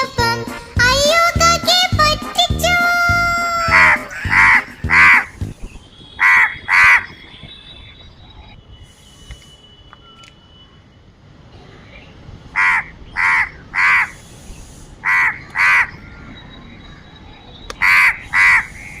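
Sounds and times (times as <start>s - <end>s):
crow cawing: 3.7s - 5.4s, 6.2s - 7.1s, 12.6s - 14.2s, 15.0s - 16.0s, 17.8s - 18.8s.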